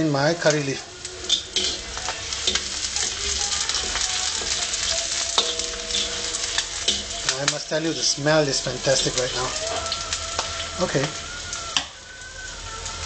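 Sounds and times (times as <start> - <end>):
food sizzling in hot oil: 0.0 - 13.0
spoon scraping a pan: 0.8 - 10.5.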